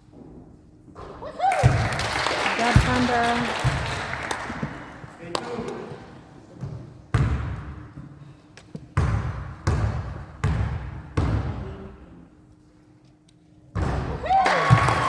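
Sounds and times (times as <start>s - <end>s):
basketball bouncing on hardwood floor: 2.6s - 3.9s, 6.6s - 7.8s, 9.0s - 11.8s, 13.8s - 14.2s.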